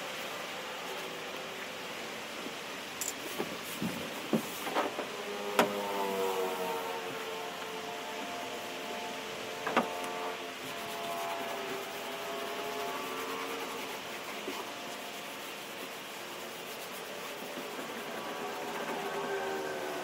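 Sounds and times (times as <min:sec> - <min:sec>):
rubbing on fiberglass: 0:03.2 - 0:20.0
hum of drifting tones: 0:04.9 - 0:15.1.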